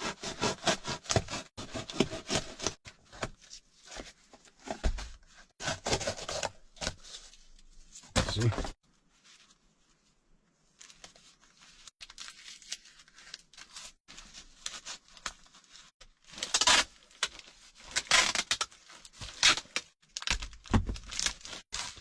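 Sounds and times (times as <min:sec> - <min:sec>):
cardboard ripping and crinkling: 0:05.6 - 0:07.3, 0:12.0 - 0:22.0.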